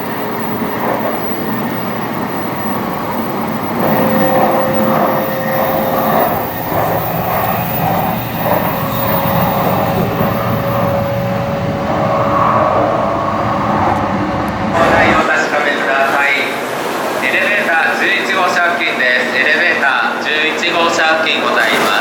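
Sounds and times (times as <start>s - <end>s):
thin steady hum: 0.0s - 15.2s
train wheels rumbling: 0.0s - 15.5s.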